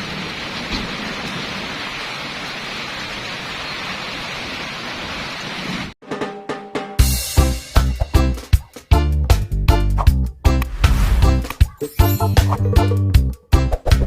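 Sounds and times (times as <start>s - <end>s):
steady rain hiss: 0.0s - 6.0s
music: 6.0s - 14.0s.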